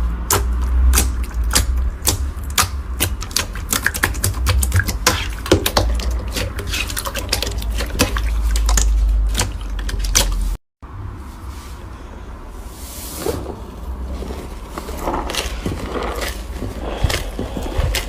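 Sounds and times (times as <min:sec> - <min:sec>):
slime squished by hand: 0:00.2 - 0:10.5.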